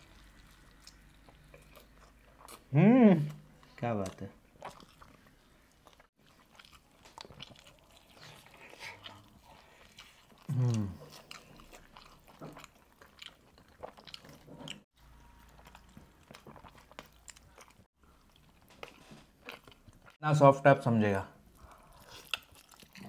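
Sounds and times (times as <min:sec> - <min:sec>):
chewing with wet mouth clicks: 0:00.1 - 0:02.7, 0:03.3 - 0:20.2, 0:21.6 - 0:23.0
person humming: 0:02.7 - 0:03.4, 0:10.5 - 0:11.1.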